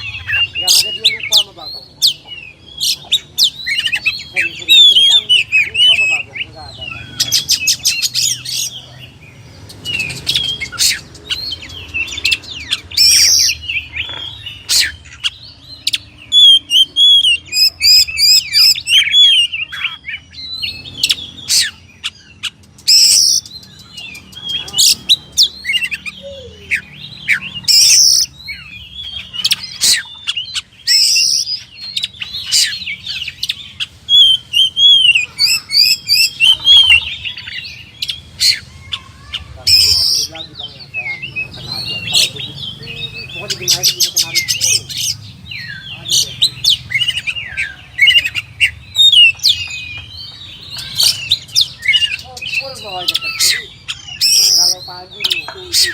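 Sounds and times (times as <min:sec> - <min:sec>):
bird singing: 0:00.0 - 0:55.9.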